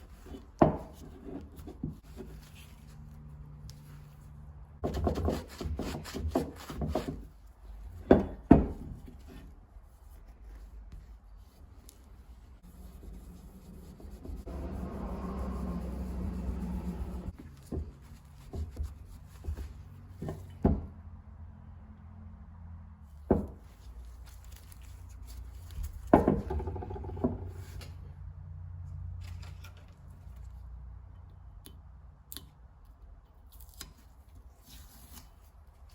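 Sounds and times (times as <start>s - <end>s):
steady rubbing: 9.4s - 20.1s.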